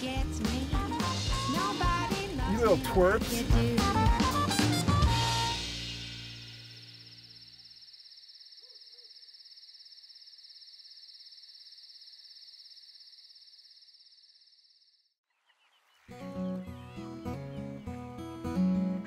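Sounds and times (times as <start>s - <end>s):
crickets chirping: 6.1s - 15.2s
music with sustained notes: 16.1s - 19.0s.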